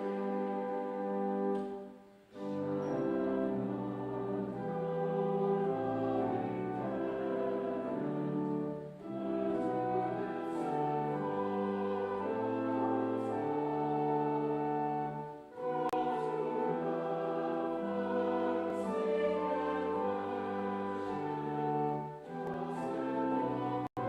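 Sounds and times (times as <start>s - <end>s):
brass quintet playing chords: 0.0s - 24.0s
breaths: 2.3s - 2.7s.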